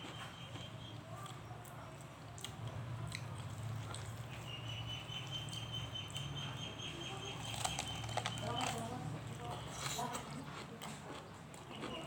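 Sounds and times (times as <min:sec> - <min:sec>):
person chewing food: 0:00.0 - 0:04.5, 0:07.4 - 0:12.0.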